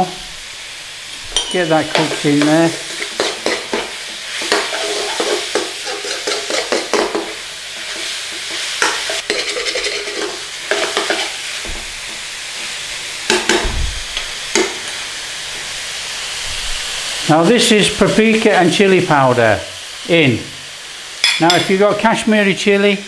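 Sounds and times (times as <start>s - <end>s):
food sizzling in a pan: 0.0s - 23.0s
utensil scraping a pan: 1.3s - 11.4s.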